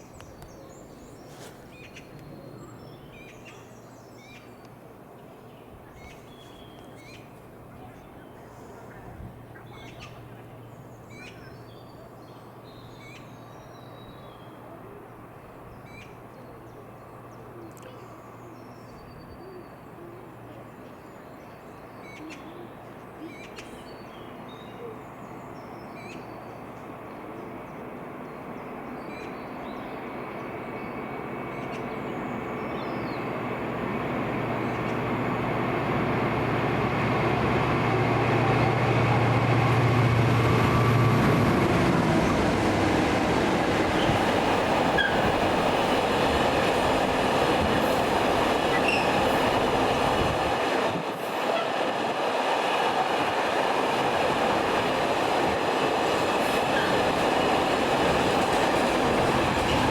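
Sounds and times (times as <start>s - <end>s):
freight train rumbling: 23.9s - 59.9s.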